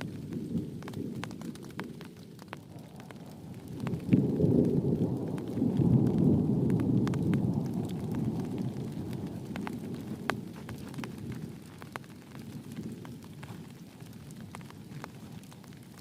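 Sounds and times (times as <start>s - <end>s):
raindrops ticking: 0.0s - 16.0s
steady rain: 0.0s - 16.0s
thunder rumbling: 0.0s - 16.0s.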